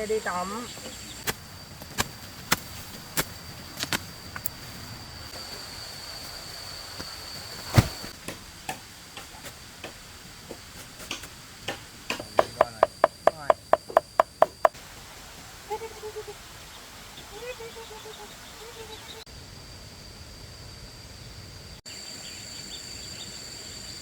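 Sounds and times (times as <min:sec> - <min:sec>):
sharp ticks and knocks: 0:08.2 - 0:14.8.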